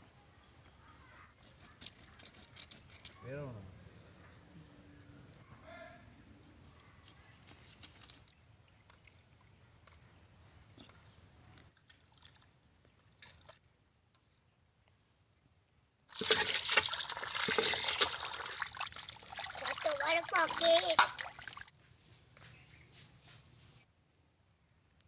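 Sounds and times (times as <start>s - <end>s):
water pouring and splashing: 11.8s - 12.6s, 16.1s - 21.7s.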